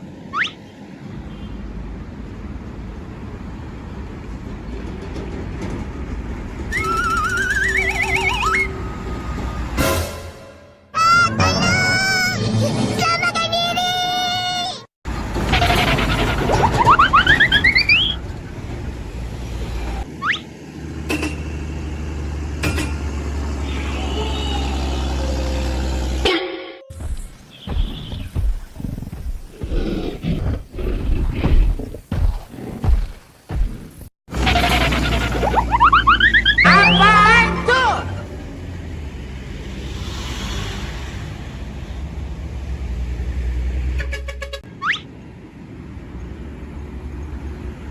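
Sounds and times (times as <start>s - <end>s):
vehicle running: 0.0s - 13.4s, 15.1s - 27.5s, 34.3s - 47.9s
truck engine rumbling: 0.0s - 13.8s, 15.0s - 27.6s, 34.3s - 47.9s
whistle rising in pitch: 6.7s - 9.8s, 34.6s - 38.0s
short rising whistle: 6.7s - 9.9s.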